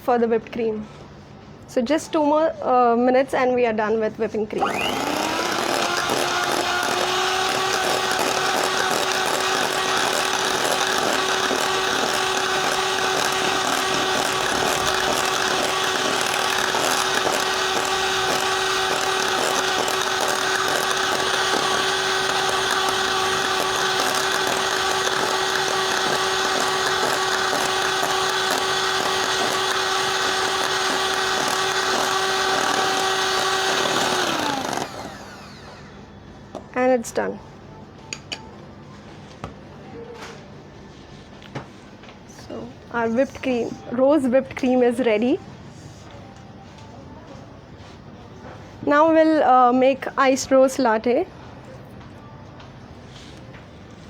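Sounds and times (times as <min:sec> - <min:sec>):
electric mixer motor running: 0:04.6 - 0:36.0.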